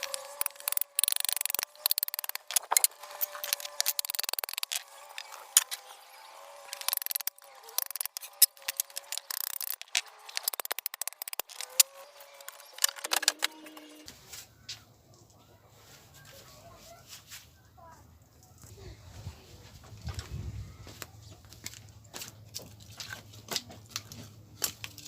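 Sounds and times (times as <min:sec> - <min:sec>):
firewood clacking together: 0:00.0 - 0:05.8, 0:06.6 - 0:13.8.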